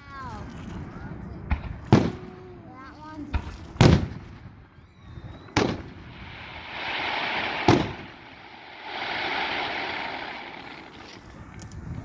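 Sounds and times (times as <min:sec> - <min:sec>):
fireworks shells booming: 0:05.3 - 0:12.0.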